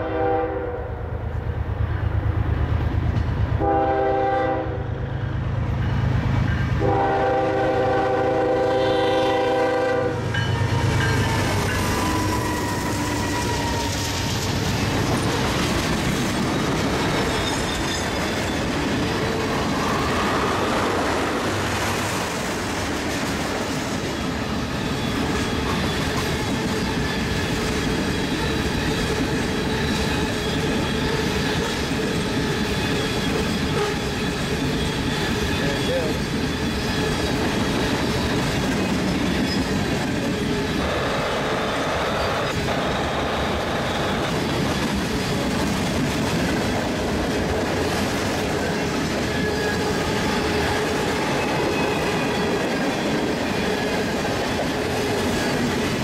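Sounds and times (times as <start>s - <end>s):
locomotive air horn: 0.0s - 1.0s, 3.6s - 5.0s, 6.8s - 11.0s, 40.8s - 44.2s
freight train rolling past: 0.0s - 56.0s.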